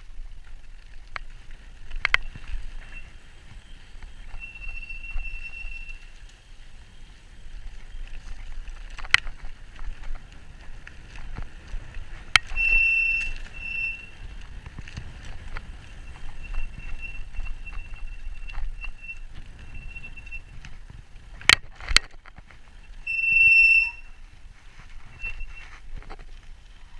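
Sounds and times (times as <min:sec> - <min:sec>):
bike knocking and rattling: 0:00.0 - 0:26.9
tyre and wind rumble: 0:00.0 - 0:26.9.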